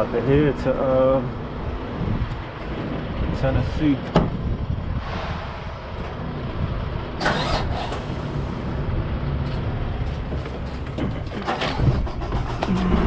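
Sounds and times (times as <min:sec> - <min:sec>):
diesel engine running: 0:04.4 - 0:13.0.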